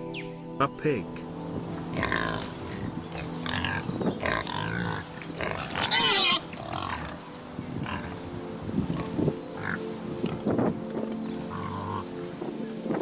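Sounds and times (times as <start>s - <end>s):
pig grunting and squealing: 1.9s - 7.2s.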